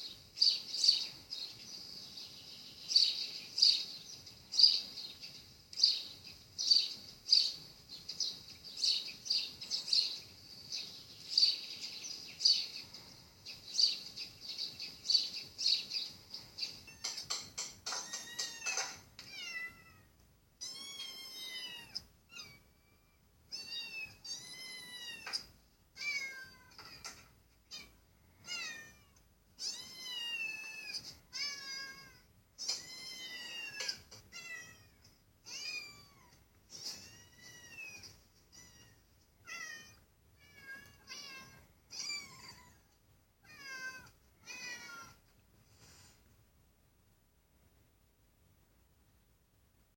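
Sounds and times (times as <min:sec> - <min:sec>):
cat meowing: 0:18.0 - 0:45.2.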